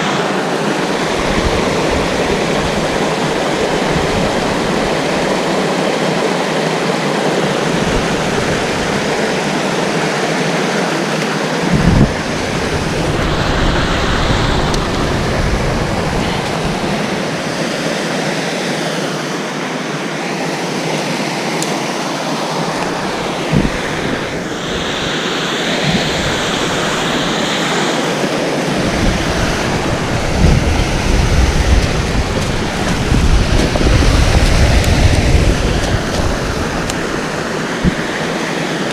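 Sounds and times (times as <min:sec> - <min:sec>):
wind rumbling on microphone: 0:00.0 - 0:06.2, 0:07.3 - 0:10.7, 0:11.5 - 0:17.9, 0:22.6 - 0:38.9
waterfall rushing: 0:00.0 - 0:38.9.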